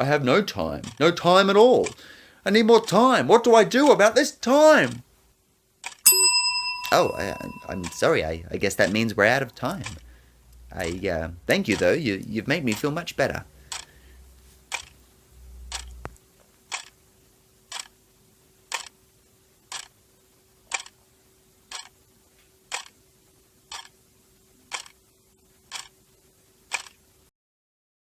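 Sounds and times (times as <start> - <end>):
clock ticking: 0.0 - 5.0, 6.1 - 16.2
faint steady hum: 0.0 - 5.3, 6.1 - 16.2.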